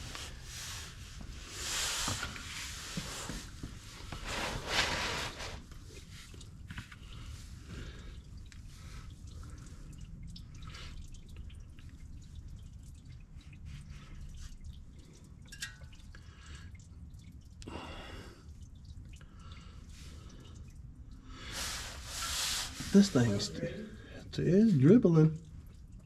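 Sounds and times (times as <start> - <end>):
oil dripping into a pan: 5.8 - 22.4.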